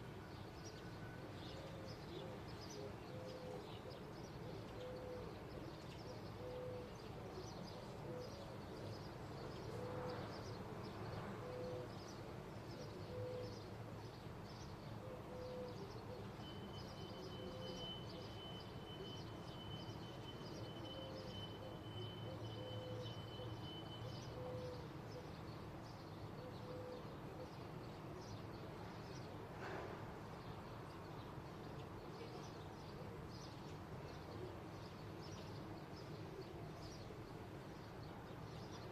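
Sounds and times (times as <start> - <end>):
bird hooting or cooing: 1.2 - 5.4, 6.1 - 8.8, 9.6 - 10.3, 11.4 - 12.0, 12.8 - 13.7, 15.0 - 19.1, 20.8 - 25.3, 26.4 - 27.7.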